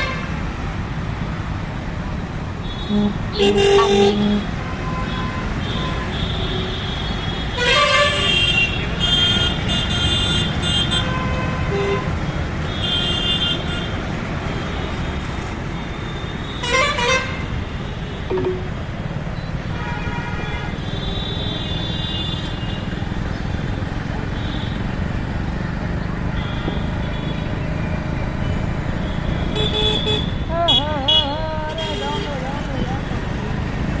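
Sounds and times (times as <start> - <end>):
road and wind rumble: 0.0 - 34.0
vehicle horns honking: 2.6 - 12.1, 16.2 - 17.6, 29.0 - 32.4
warbling horn: 2.9 - 4.6.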